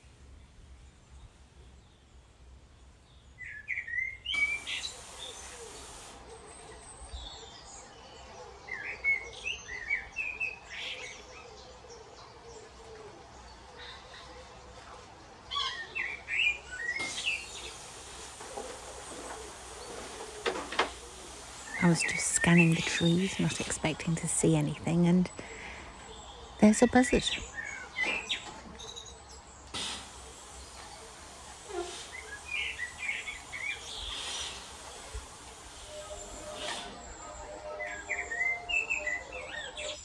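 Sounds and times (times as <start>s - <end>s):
small birds chirping: 2.8s - 40.0s
outdoor hiss: 4.2s - 10.9s, 16.0s - 40.0s.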